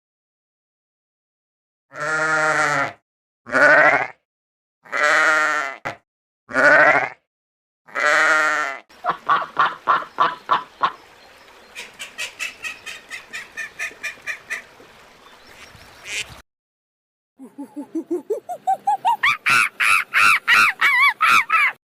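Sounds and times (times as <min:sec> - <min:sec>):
goat or sheep bleating: 0:01.9 - 0:04.2, 0:04.8 - 0:07.2, 0:07.9 - 0:08.8.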